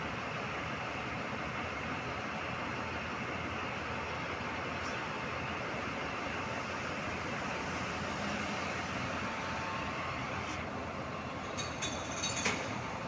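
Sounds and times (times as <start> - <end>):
diesel truck running: 0.0 - 13.0.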